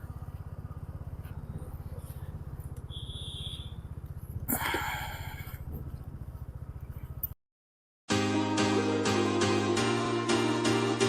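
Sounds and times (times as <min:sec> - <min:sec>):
motorcycle engine idling: 0:00.0 - 0:07.4
vehicle horn honking: 0:02.8 - 0:03.8.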